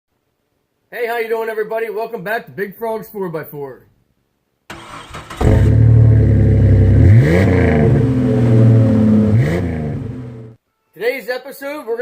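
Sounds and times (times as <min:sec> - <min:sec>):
vehicle engine revving: 0:04.7 - 0:10.6.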